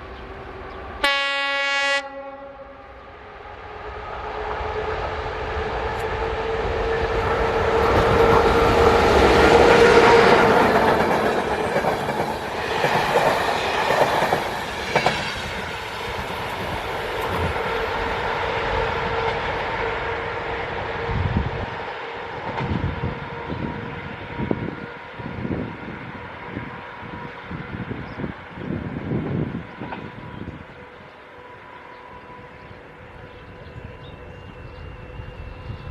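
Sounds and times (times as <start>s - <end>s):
train wheels clacking over rail joints: 7.7s - 17.9s.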